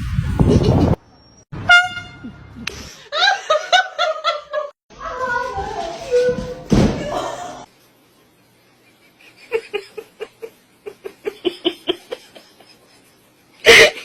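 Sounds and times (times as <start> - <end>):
person laughing: 9.1 - 14.0.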